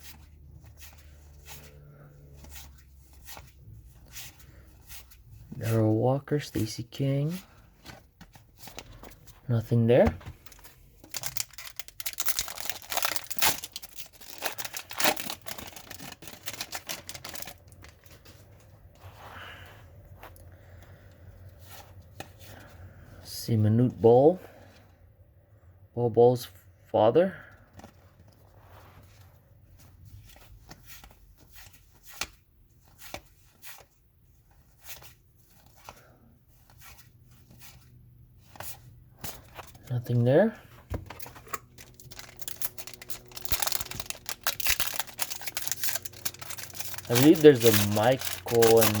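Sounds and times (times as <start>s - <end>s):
cards rustling and clicking: 0.0s - 5.9s, 6.5s - 18.7s, 29.8s - 49.0s
wrapper crinkling and tearing: 10.4s - 18.3s, 41.1s - 49.0s.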